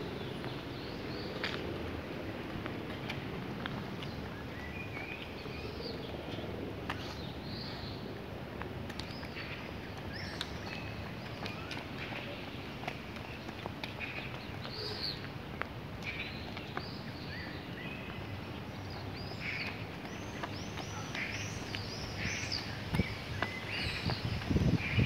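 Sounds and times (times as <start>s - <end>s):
light footsteps on asphalt: 0.0s - 25.0s
songbirds chirping and singing: 9.0s - 25.0s.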